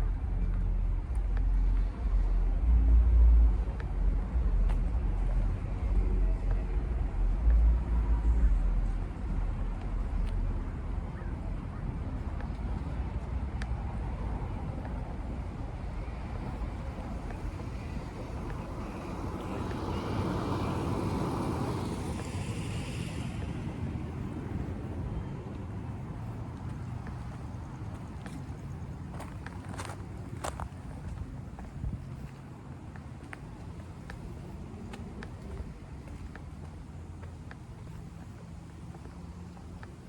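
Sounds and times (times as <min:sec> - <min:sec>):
low rumble of traffic: 0:00.0 - 0:40.0
car passing: 0:11.2 - 0:40.0.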